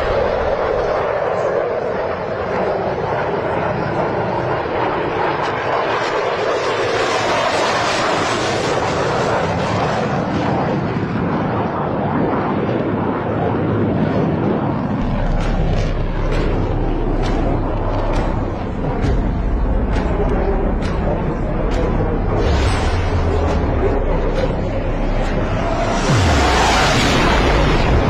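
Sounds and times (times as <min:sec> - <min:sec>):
airplane engines roaring: 0:00.0 - 0:28.0
low hum: 0:14.7 - 0:28.0.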